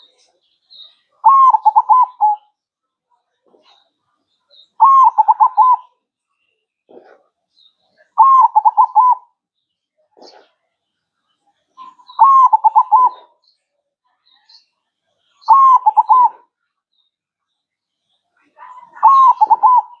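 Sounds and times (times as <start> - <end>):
dove cooing: 1.2 - 2.4, 4.8 - 5.9, 8.2 - 9.3, 11.8 - 13.4, 15.5 - 16.5, 18.8 - 20.0.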